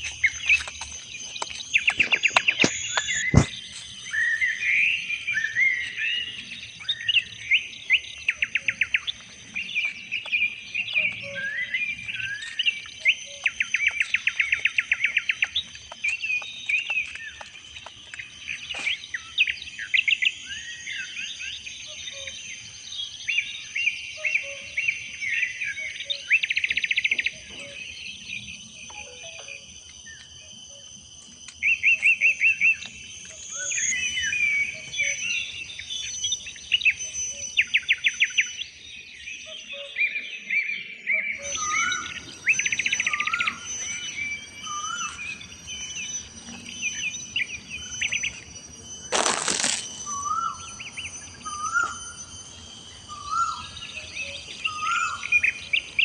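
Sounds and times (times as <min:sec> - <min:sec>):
forest birds calling and singing: 0:00.0 - 0:56.0
high insect drone: 0:00.0 - 0:56.0.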